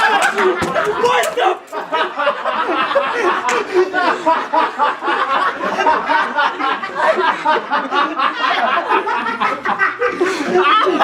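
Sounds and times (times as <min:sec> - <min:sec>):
young men talking: 0:00.0 - 0:05.2
men laughing: 0:00.0 - 0:11.0.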